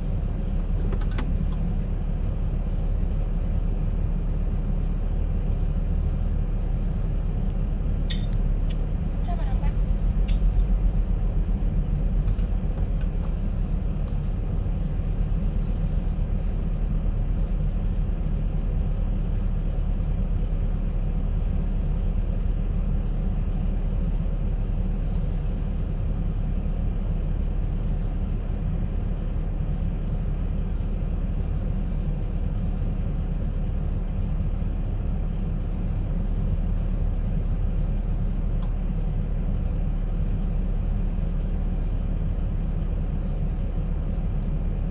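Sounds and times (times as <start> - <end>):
faint light ticks: 7.4 - 8.8, 38.6 - 38.8.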